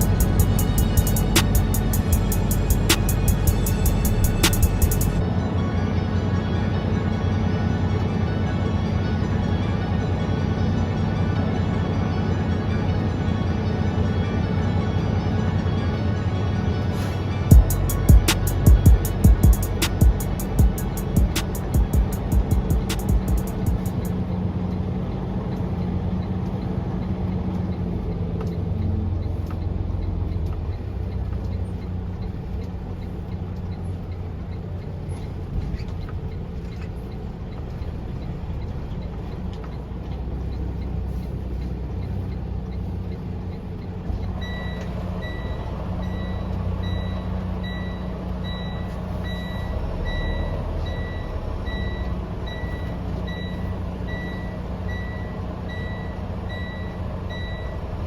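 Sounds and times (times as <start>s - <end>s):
reversing alarm beeping: 0.0s - 24.4s, 40.5s - 58.0s
diesel truck engine running: 0.0s - 58.0s.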